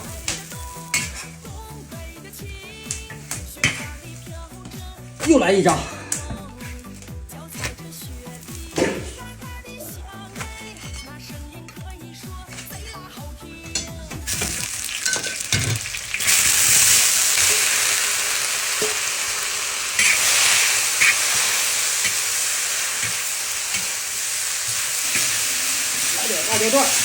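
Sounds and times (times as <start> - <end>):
food sizzling in hot oil: 0.0 - 4.5, 14.3 - 27.0
background music: 0.0 - 27.0
spatula scraping and tapping: 2.8 - 4.0.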